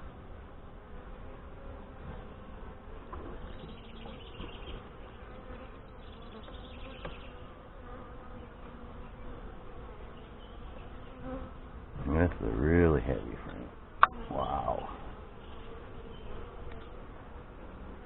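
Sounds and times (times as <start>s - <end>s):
honey bees buzzing: 0.0s - 18.0s.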